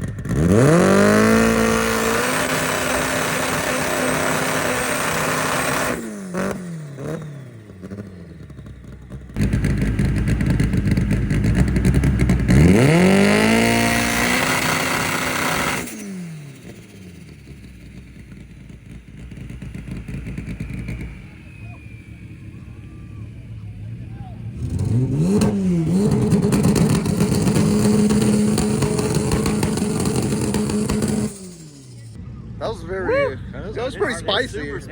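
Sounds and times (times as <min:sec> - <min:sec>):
car engines revving: 0:00.0 - 0:32.8.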